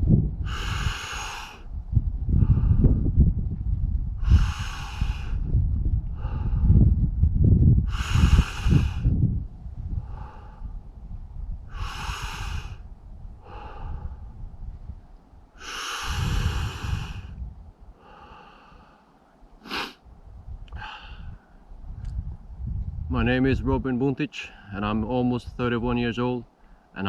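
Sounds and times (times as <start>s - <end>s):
low rumble: 0.0s - 1.0s, 1.6s - 18.0s
man breathing heavily: 0.4s - 1.7s, 2.3s - 3.1s, 4.2s - 7.0s, 7.7s - 9.3s, 9.9s - 10.9s, 11.6s - 14.5s, 15.6s - 20.0s, 20.7s - 21.7s.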